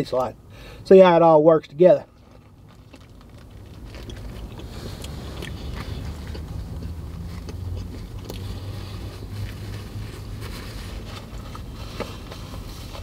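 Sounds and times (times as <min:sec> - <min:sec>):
low vehicle hum: 0:00.0 - 0:13.0
man chewing food: 0:02.2 - 0:13.0.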